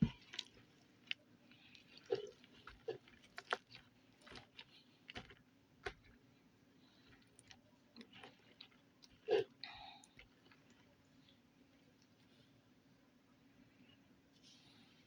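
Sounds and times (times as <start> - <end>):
slime squelching by hand: 0.0 - 6.2.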